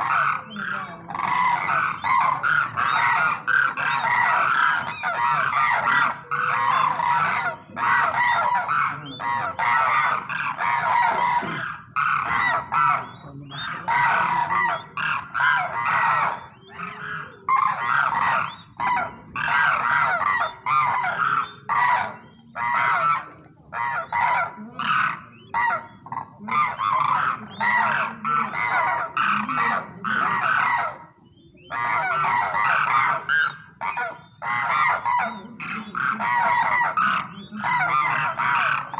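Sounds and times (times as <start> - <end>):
cranes honking: 0.0 - 23.0.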